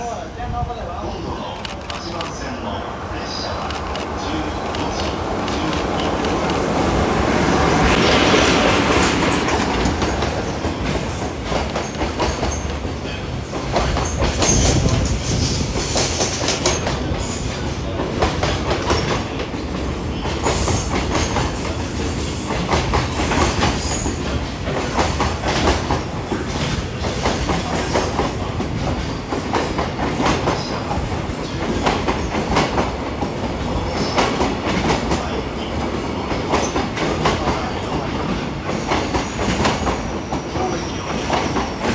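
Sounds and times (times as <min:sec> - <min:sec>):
freight train passing: 0:00.0 - 0:41.9
wheels clacking over rail joints: 0:03.4 - 0:41.9.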